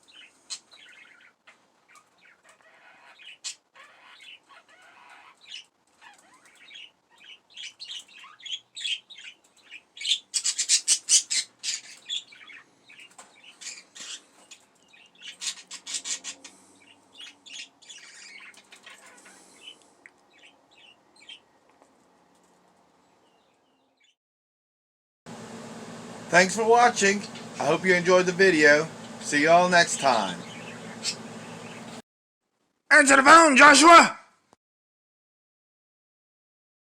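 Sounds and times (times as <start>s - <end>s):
budgerigars chirping and warbling: 0.0s - 21.4s, 26.4s - 32.0s.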